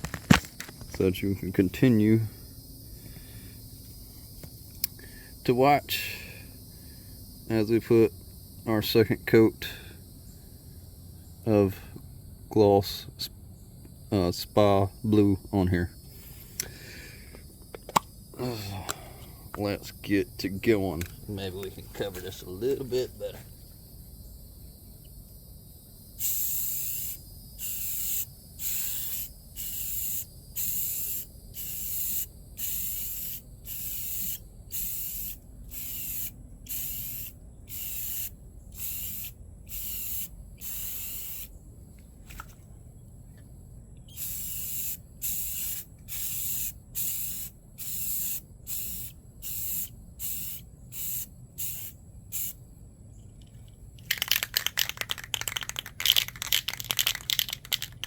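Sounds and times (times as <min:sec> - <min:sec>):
spray paint can hissing bursts: 0:26.2 - 0:41.5, 0:44.1 - 0:52.6, 0:54.1 - 0:58.0.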